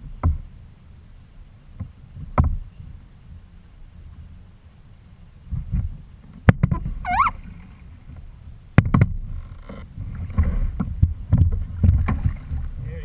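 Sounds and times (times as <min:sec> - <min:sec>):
water sloshing against hull: 0:00.0 - 0:13.0
sharp knocks on hull: 0:00.1 - 0:00.4, 0:01.8 - 0:02.6, 0:05.5 - 0:07.0, 0:08.8 - 0:09.3, 0:10.2 - 0:12.8.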